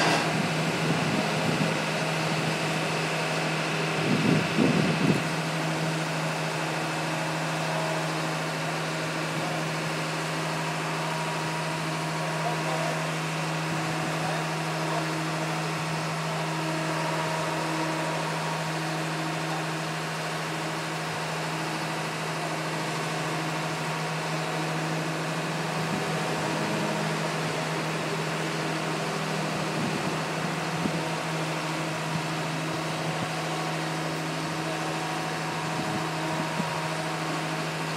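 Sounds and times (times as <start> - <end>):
drill rig engine droning: 0.0 - 37.9.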